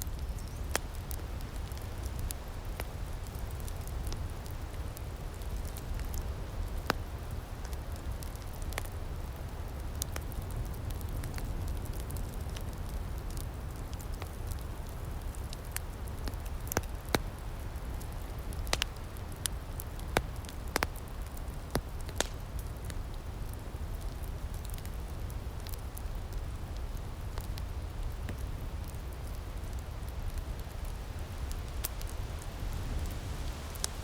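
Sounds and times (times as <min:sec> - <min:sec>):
fire pops and snaps: 0:00.0 - 0:34.0
wood fire crackling: 0:00.0 - 0:34.0.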